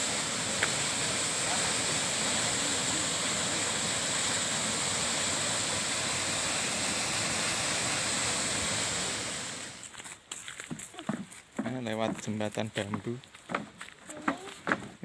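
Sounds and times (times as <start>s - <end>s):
waterfall rushing: 0.0s - 9.9s.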